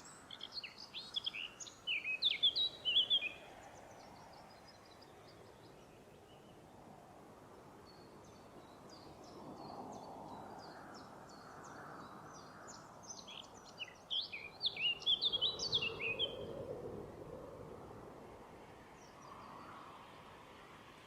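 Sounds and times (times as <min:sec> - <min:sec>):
songbirds singing: 0:00.0 - 0:06.8, 0:07.8 - 0:16.7.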